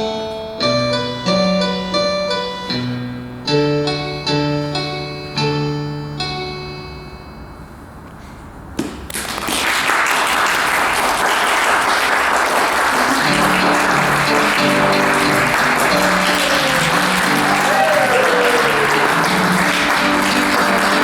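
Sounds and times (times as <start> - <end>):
piano chord ringing: 0.0 - 8.0, 13.1 - 21.0
audience applause: 9.1 - 21.0.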